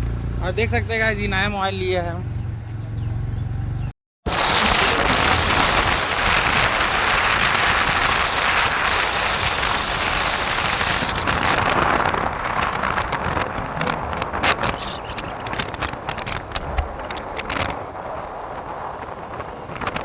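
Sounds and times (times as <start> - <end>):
motorcycle engine and road noise: 0.0 - 20.0
wind noise on microphone: 3.8 - 20.0.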